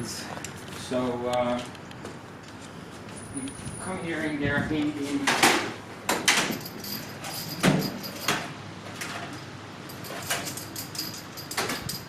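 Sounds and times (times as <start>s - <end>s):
metallic tool clinks and knocks: 6.3s - 8.5s, 9.9s - 12.0s.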